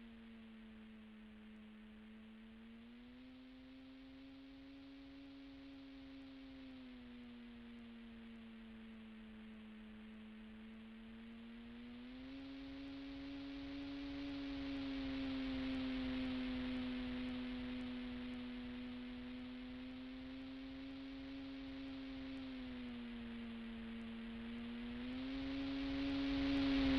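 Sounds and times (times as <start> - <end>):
model plane motor droning: 10.9 - 26.9.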